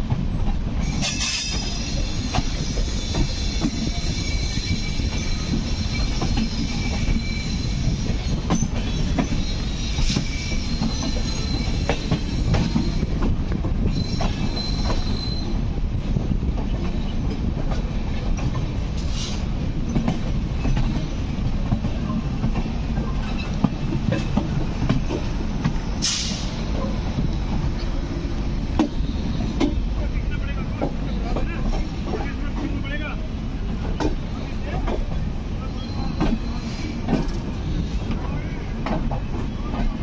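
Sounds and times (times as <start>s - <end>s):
rumble of train wheels on rail: 0.0s - 40.0s
high wheel squeal: 0.8s - 13.2s, 13.8s - 15.6s, 28.8s - 29.6s, 35.6s - 38.7s.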